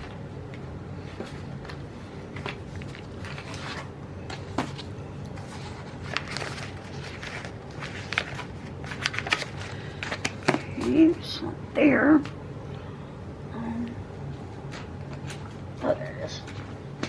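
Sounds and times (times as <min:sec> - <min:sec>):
paper rustling: 0:00.0 - 0:11.1
steady low hum: 0:00.0 - 0:17.0.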